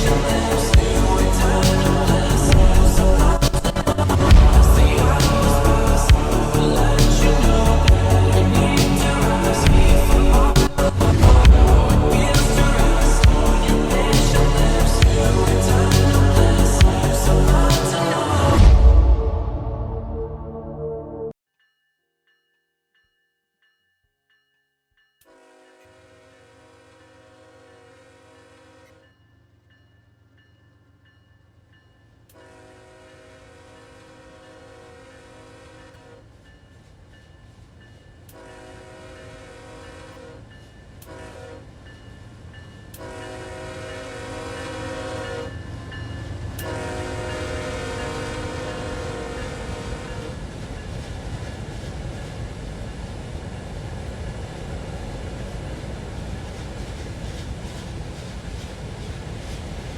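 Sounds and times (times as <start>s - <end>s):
train passing rumble: 0.0s - 21.3s, 32.2s - 59.9s
locomotive air horn blasts: 25.3s - 29.0s, 32.4s - 36.2s, 38.3s - 40.4s, 41.0s - 41.6s, 43.0s - 45.6s, 46.6s - 50.3s.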